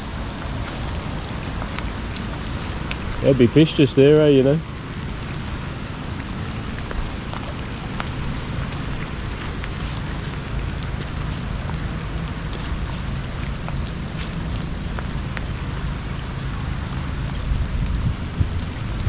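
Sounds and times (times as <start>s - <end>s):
heavy rain: 0.0s - 19.0s
raindrops ticking close by: 0.0s - 19.0s
low rumble: 4.1s - 19.0s.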